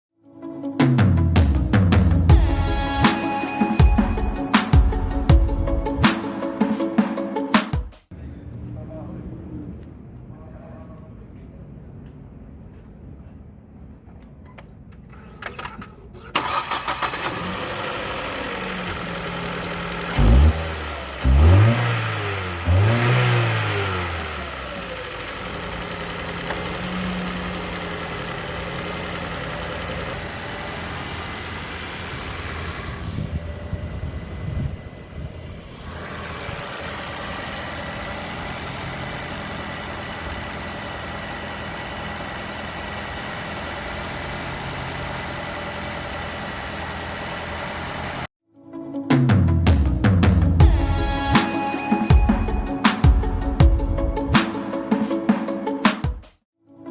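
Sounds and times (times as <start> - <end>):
car engine idling: 8.2 - 48.3
car engine revving: 15.0 - 48.3.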